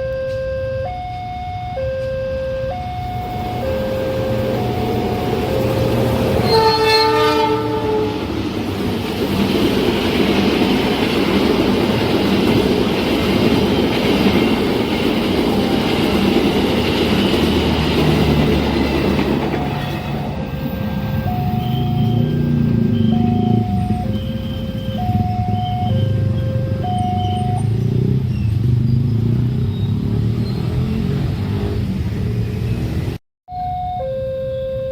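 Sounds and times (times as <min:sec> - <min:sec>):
crossing alarm beeps: 0:00.0 - 0:06.6, 0:19.5 - 0:28.5, 0:33.5 - 0:34.9
train horn blast: 0:02.0 - 0:08.5, 0:19.7 - 0:26.7
train wheels rumbling on rails: 0:03.0 - 0:33.2.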